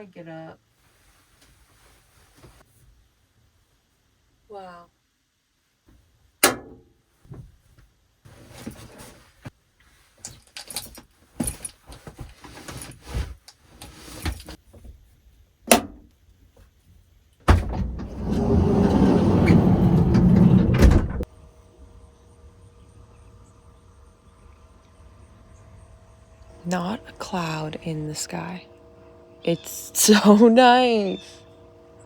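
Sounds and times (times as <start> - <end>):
rustling of someone moving about: 0.7 - 3.9, 7.1 - 15.6.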